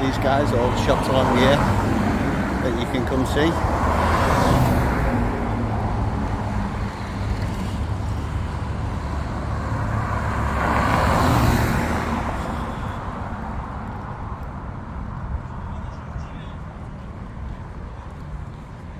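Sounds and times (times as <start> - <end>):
vehicle passing close: 0.0 - 12.9
cars driving by: 0.0 - 18.9
steady low traffic rumble: 0.0 - 18.9.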